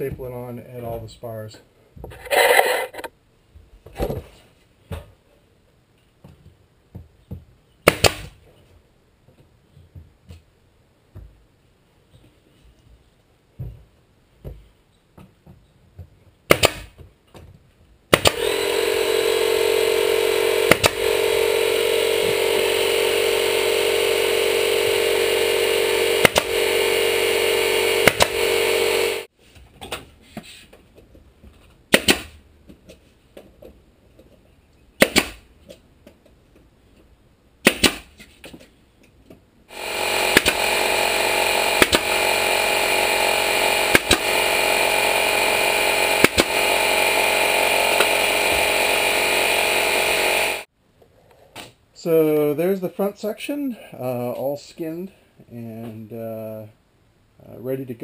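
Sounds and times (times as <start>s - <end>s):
staple gun firing: 16.5s - 16.9s, 18.1s - 18.5s, 20.7s - 21.0s
steady motor running: 18.2s - 29.3s, 39.7s - 50.7s.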